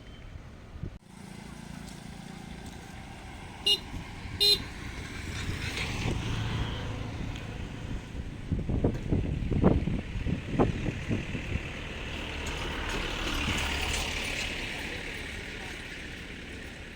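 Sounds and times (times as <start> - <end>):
vehicle engine running: 1.0 - 16.9
vehicle horn tooting: 3.6 - 4.8.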